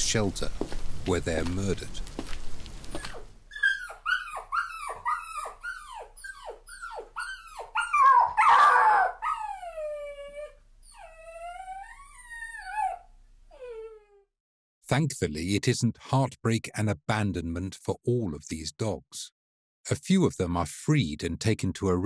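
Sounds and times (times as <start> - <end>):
dog yelping: 3.0 - 14.2
dog whining: 3.0 - 14.3.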